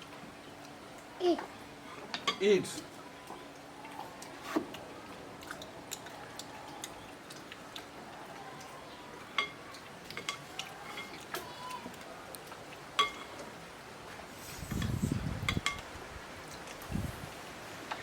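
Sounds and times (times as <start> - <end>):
cutlery clinking against dish: 9.4 - 11.2, 13.0 - 13.4.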